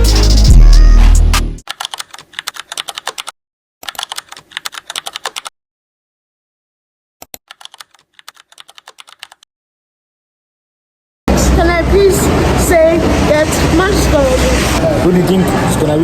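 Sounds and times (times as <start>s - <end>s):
keyboard typing clicks: 1.6s - 5.5s, 7.2s - 9.4s.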